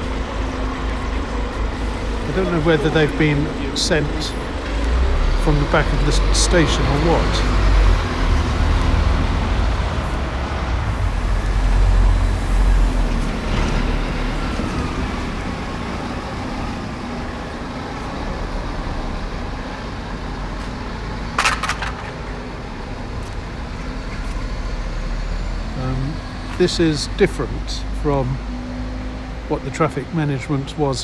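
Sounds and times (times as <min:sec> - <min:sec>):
heavy vehicle engine rumble: 0:00.0 - 0:31.0
road traffic passing: 0:00.0 - 0:31.0.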